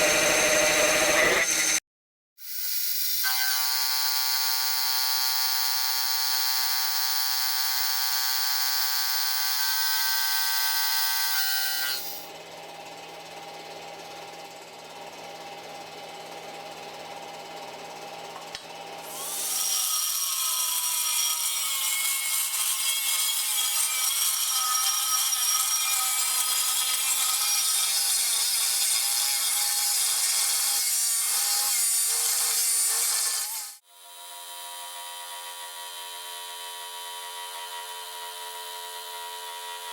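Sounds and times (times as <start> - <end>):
many-toned motor whine: 0.0 - 1.8
noisy power tool working material: 0.0 - 1.8, 2.4 - 12.3, 19.0 - 39.9.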